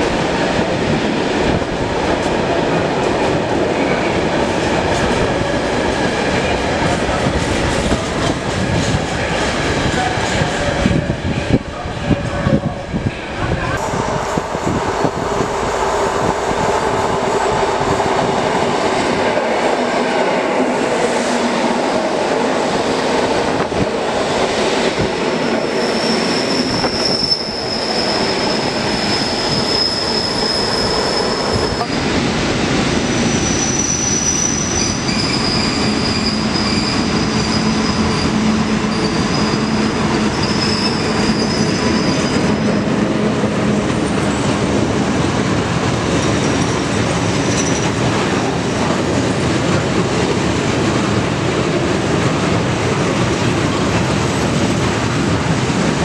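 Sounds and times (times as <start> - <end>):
freight train rumbling past: 0.0 - 56.0
electric train wheels squealing: 25.4 - 32.0, 33.0 - 42.9, 46.2 - 48.0.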